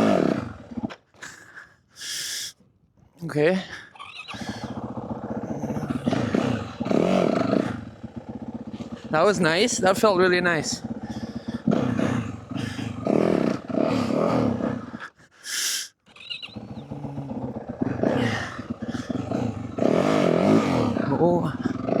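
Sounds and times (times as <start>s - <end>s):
dirt bike engine revving: 0.0s - 0.9s, 4.6s - 15.0s, 16.5s - 22.0s.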